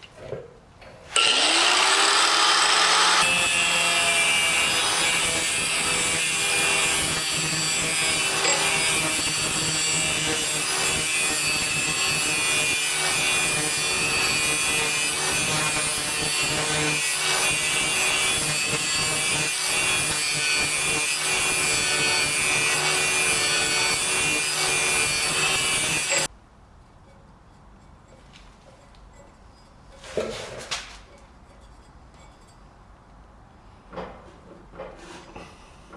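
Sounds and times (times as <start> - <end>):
power grinder grinding steel blade: 1.1 - 26.3.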